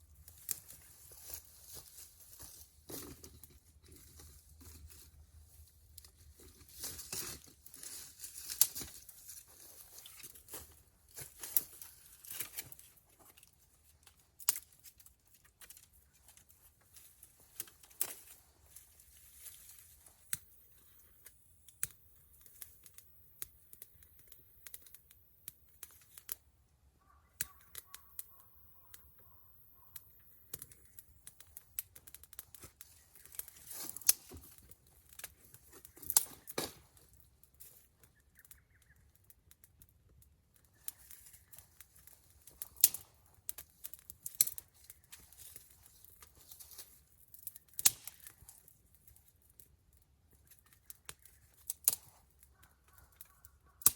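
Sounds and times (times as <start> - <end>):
campfire crackling and popping: 29.8 - 53.0.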